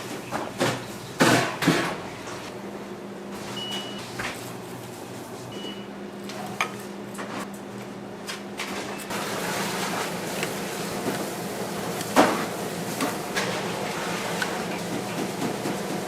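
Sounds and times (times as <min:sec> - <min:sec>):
machine hum: 0:09.1 - 0:16.0.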